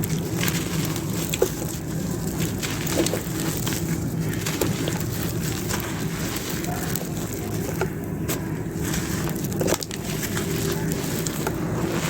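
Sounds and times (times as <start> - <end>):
dry clay crunching and crackling: 0.0 - 12.0.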